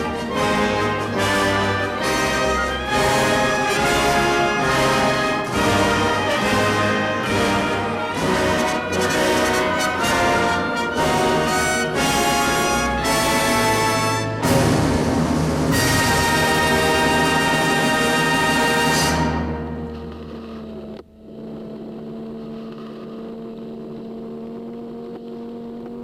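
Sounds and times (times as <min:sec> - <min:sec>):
orchestral music with brass: 0:00.0 - 0:20.6.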